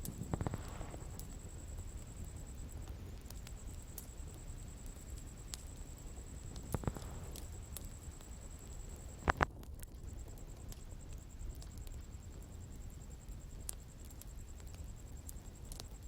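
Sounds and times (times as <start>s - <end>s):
bonfire crackling and popping: 0.0s - 16.0s.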